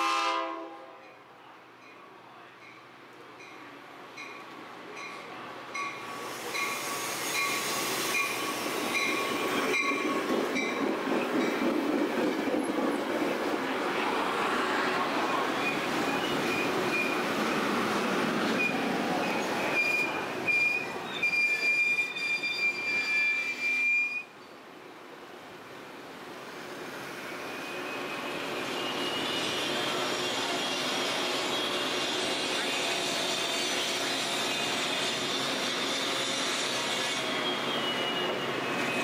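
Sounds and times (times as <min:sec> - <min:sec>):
rumble of passing train cars: 0:00.0 - 0:39.0
train wheels squealing: 0:05.8 - 0:10.8, 0:15.2 - 0:17.6, 0:18.5 - 0:24.3, 0:27.2 - 0:39.0.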